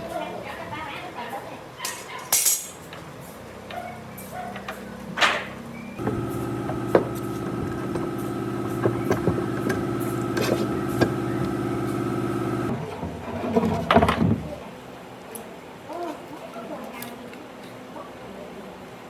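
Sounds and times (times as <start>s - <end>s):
clicks and knocks: 6.0s - 12.7s
motor humming with whine: 6.0s - 12.8s.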